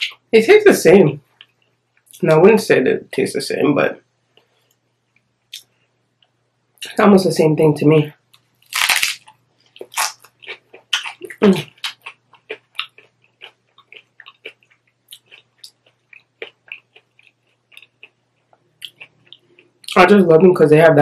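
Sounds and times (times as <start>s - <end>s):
crunching crispy taco: 8.3s - 20.0s.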